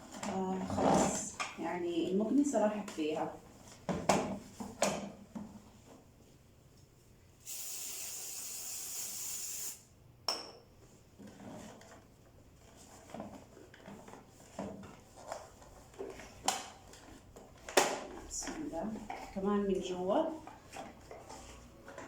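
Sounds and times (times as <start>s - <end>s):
aerosol spray hissing: 7.4s - 9.9s.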